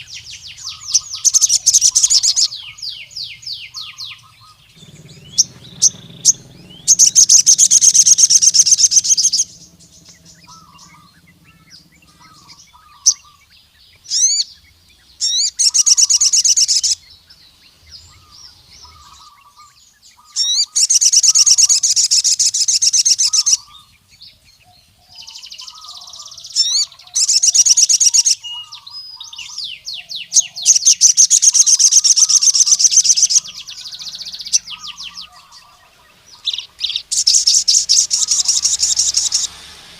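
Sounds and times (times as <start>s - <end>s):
sharp single bird chirps: 0.0s - 14.5s
faint low bird notes: 0.0s - 15.9s
bird twittering song: 0.0s - 39.9s.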